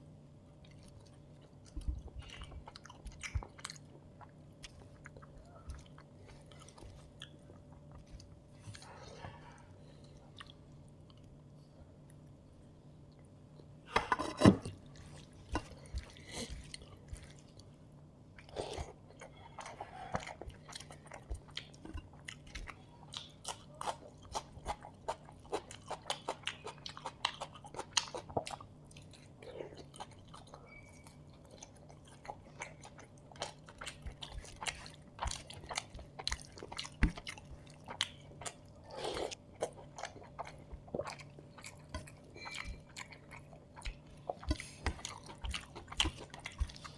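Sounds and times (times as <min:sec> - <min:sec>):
wet chewing and lip-smacking: 0:00.6 - 0:09.1, 0:18.3 - 0:46.9.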